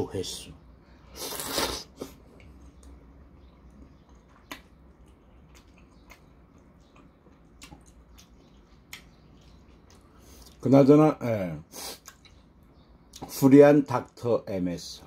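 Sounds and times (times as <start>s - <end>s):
person chewing: 1.1s - 10.6s, 11.9s - 12.5s.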